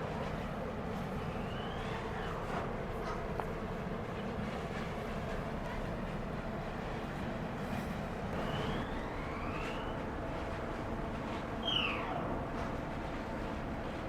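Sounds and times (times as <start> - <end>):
whistling glides: 1.3 - 2.0, 8.4 - 10.0.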